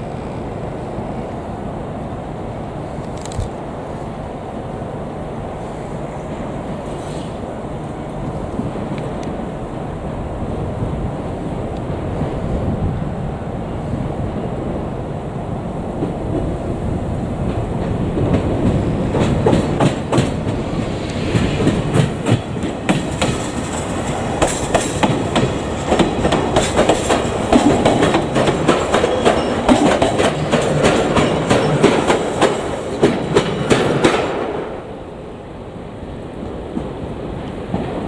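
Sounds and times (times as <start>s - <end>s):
train rumble: 0.0s - 38.0s
train wheels clattering over rail joints: 17.4s - 34.6s.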